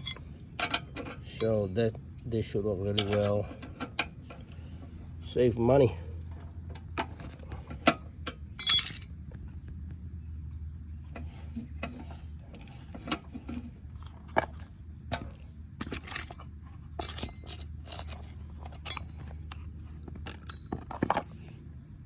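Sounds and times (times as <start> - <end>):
low steady hum: 0.0 - 22.0
light clicks and clinks: 7.8 - 9.5, 15.8 - 19.6, 20.2 - 21.4.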